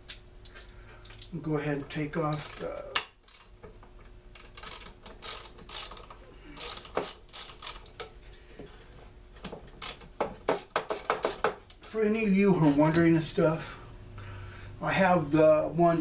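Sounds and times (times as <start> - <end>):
hand tools clicking and scraping: 0.0 - 11.8.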